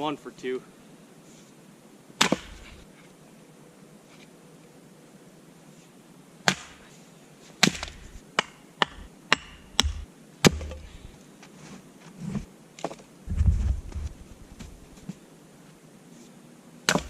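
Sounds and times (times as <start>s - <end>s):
axe chopping firewood: 2.2s - 2.8s, 6.5s - 6.8s, 7.6s - 11.0s.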